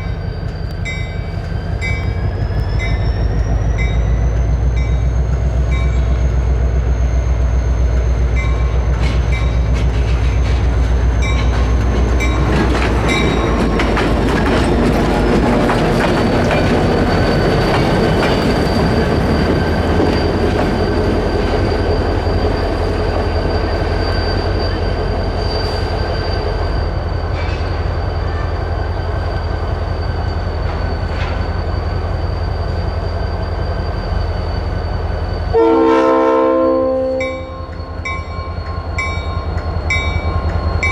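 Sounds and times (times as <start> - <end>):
high wheel squeal: 0.0 - 40.9
wheels clicking over rail joints: 8.8 - 20.8.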